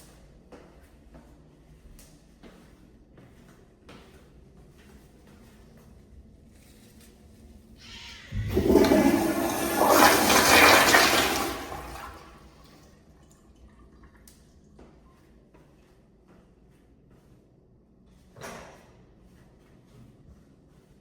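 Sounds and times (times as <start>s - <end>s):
toilet flushing: 7.8s - 14.3s.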